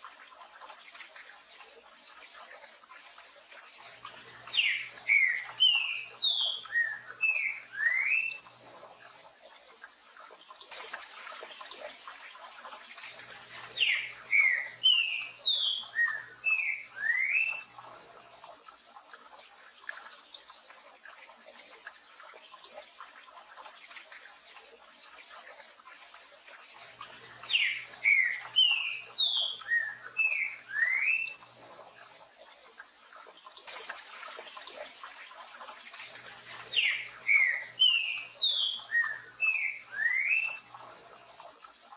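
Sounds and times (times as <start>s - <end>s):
bird whistling song: 4.5s - 8.5s, 13.8s - 17.7s, 27.4s - 31.4s, 36.7s - 40.6s.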